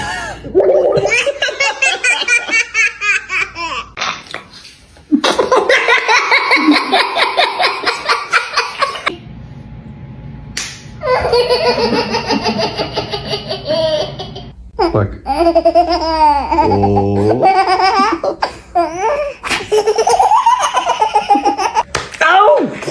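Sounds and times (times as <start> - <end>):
young children laughing: 1.0 - 4.0, 5.1 - 9.1, 11.0 - 21.9.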